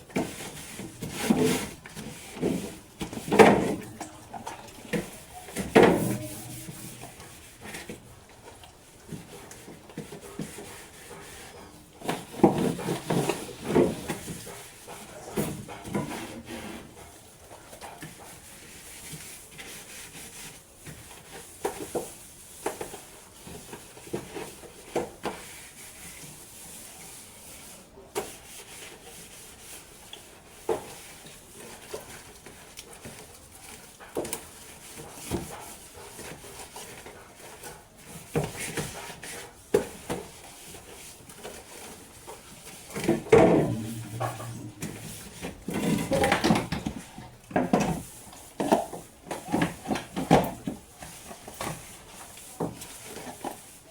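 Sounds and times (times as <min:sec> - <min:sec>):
scrubbing and scraping: 0:00.1 - 0:08.6, 0:28.3 - 0:53.9.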